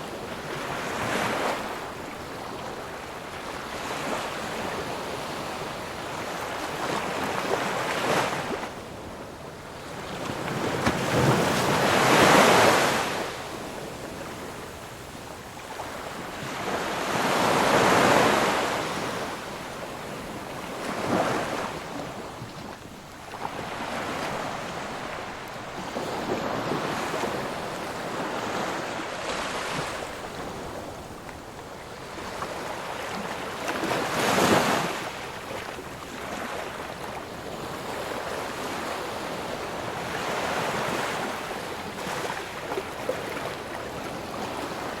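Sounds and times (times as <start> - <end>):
ocean waves breaking: 9.7 - 15.0, 15.6 - 45.0.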